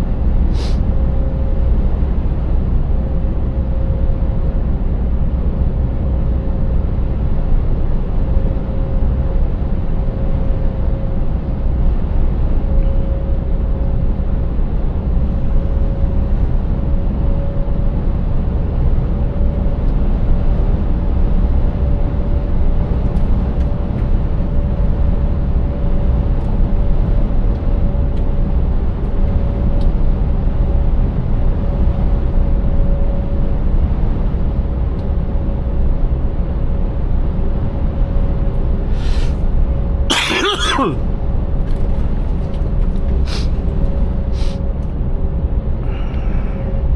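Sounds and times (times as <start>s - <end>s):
road noise: 38.9s - 39.5s.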